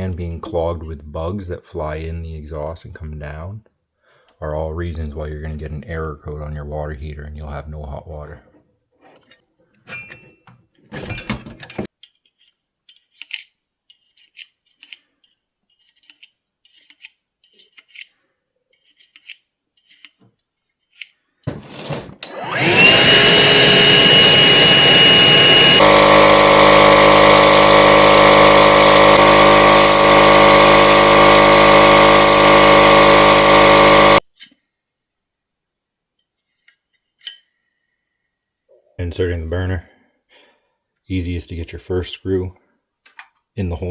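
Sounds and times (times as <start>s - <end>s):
vacuum cleaner running: 21.5s - 34.2s.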